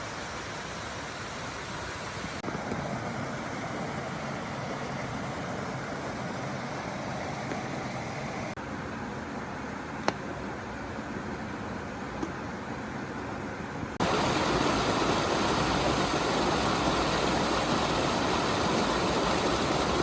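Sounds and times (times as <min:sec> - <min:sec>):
stream water rushing: 0:00.0 - 0:08.6, 0:14.0 - 0:20.0.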